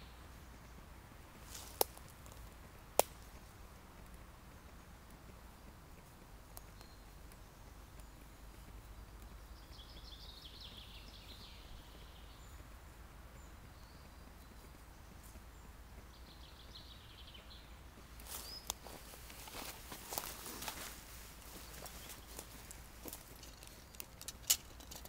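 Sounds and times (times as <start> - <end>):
faint outdoor rumble: 0.0 - 25.0
footsteps crunching through leaves: 1.4 - 2.5, 18.0 - 23.8.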